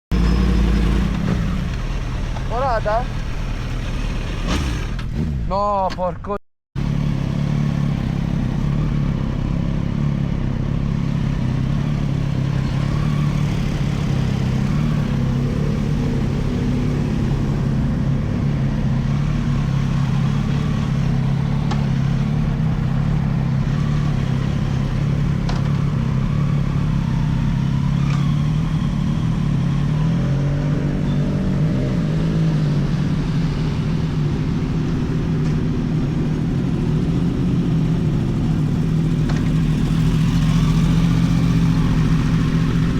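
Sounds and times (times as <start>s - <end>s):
motorcycle engine running: 6.8s - 42.9s.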